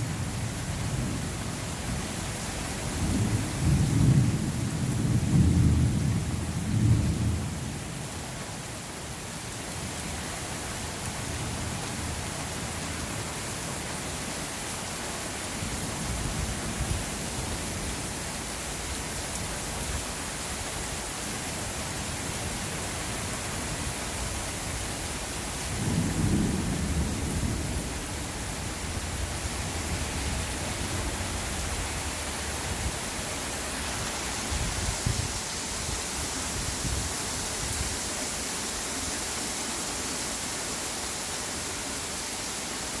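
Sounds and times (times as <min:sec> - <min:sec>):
steady rain: 0:00.0 - 0:43.0
thunder rumbling: 0:25.8 - 0:32.6.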